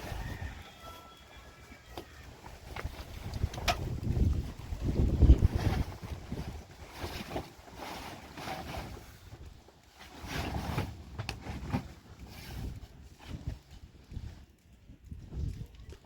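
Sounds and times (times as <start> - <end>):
strong wind gusting on microphone: 0.0 - 0.8, 2.2 - 7.4, 12.4 - 16.0.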